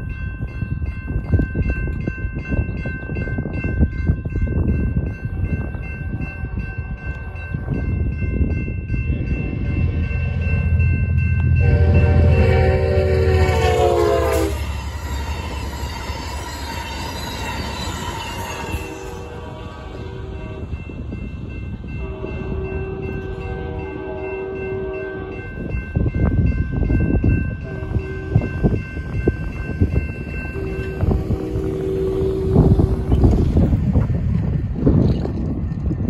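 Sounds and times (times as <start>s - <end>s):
railroad crossing bell ringing: 0.0s - 34.6s
train rumble: 0.0s - 36.0s
train horn blast: 10.0s - 14.9s, 18.4s - 20.7s, 22.0s - 25.5s, 27.6s - 28.7s, 30.4s - 33.4s.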